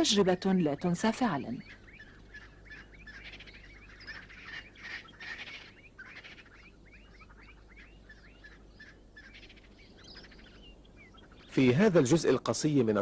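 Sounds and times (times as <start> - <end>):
francolins calling: 0.0 - 13.0.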